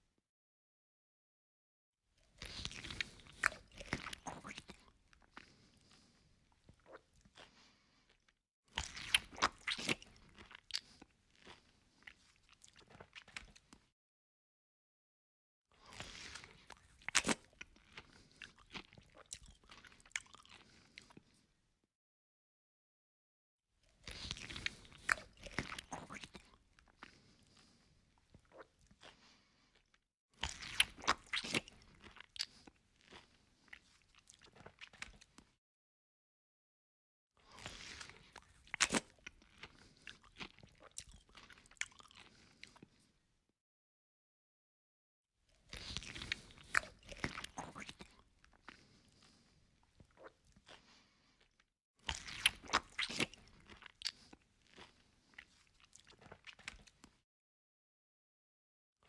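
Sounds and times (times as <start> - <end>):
crunching crispy fried food: 2.4 - 5.6, 15.8 - 21.1, 24.0 - 27.6, 30.4 - 35.5, 37.5 - 42.8, 45.6 - 49.4, 52.0 - 57.2.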